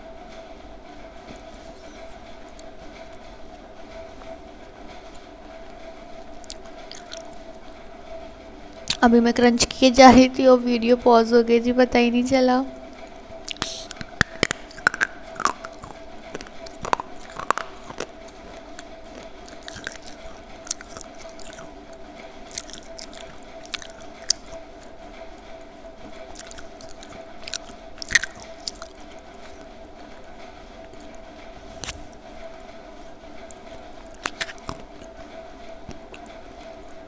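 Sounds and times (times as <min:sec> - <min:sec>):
crisp crunching while chewing: 0:06.4 - 0:07.4, 0:13.5 - 0:21.8, 0:22.4 - 0:24.9, 0:26.3 - 0:29.6, 0:34.1 - 0:35.1.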